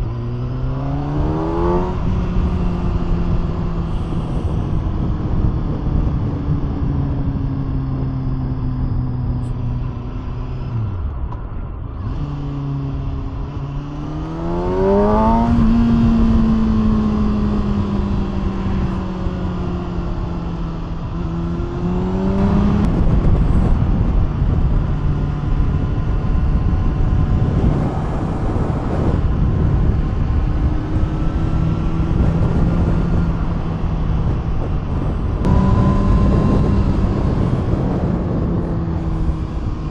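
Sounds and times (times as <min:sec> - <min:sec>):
motorcycle engine revving: 0:00.0 - 0:39.9
rush of noise: 0:13.2 - 0:39.9.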